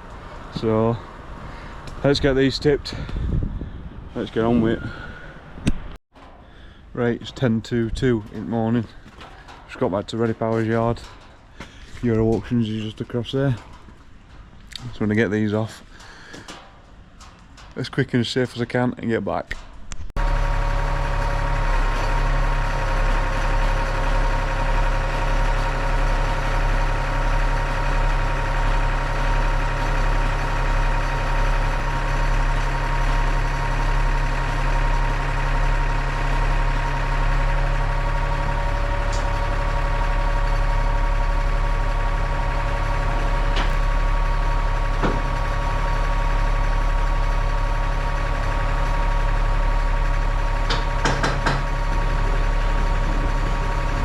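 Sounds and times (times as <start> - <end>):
truck diesel engine idling: 20.2 - 54.0.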